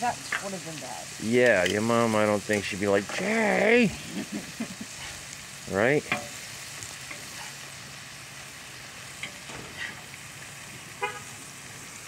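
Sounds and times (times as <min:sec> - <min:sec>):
meat sizzling on a griddle: 0:00.0 - 0:12.0.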